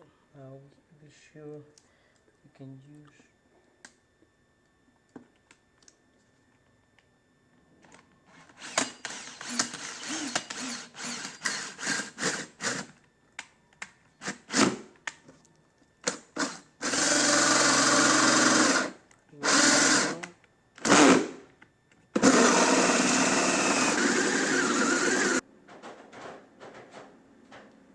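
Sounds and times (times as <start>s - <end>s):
power drill cutting: 8.6s - 12.9s, 16.4s - 21.4s, 22.2s - 25.4s.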